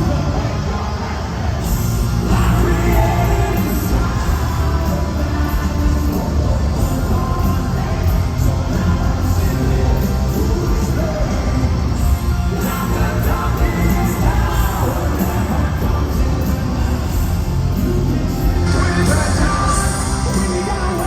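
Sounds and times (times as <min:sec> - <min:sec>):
bass guitar: 0:00.0 - 0:21.0
distorted guitars: 0:00.0 - 0:21.0
drums: 0:00.0 - 0:21.0
person singing lead vocal: 0:00.0 - 0:21.0.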